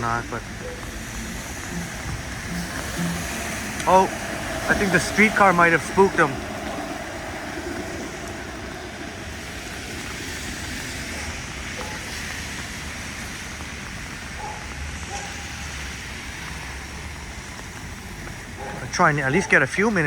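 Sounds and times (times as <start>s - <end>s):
low rumble: 0.0s - 11.7s
heavy rain hissing: 0.0s - 20.0s.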